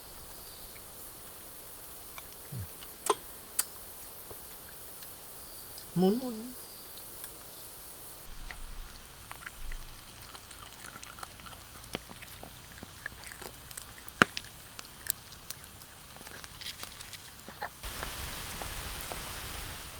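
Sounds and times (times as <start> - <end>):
people chewing and biting: 0.7 - 6.2, 8.3 - 17.8.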